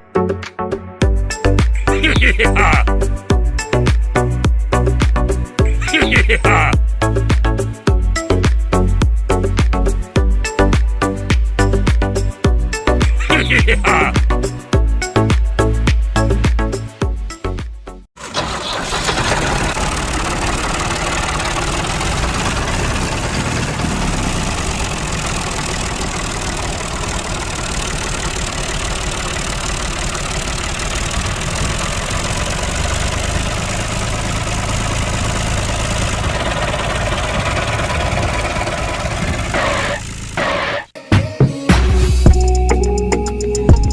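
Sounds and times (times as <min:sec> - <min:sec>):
engine running roughly: 0:18.2 - 0:40.9.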